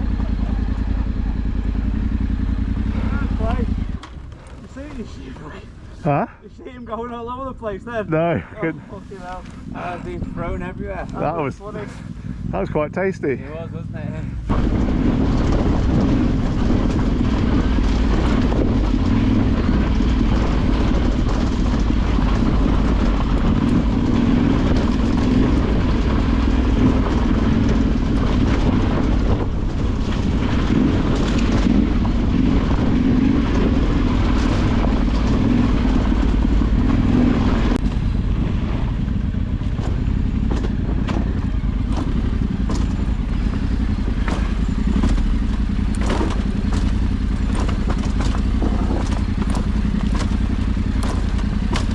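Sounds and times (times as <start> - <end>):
knocks and rattles from bike: 0.0 - 5.6, 14.4 - 51.9
motorcycle engine running: 0.0 - 51.9.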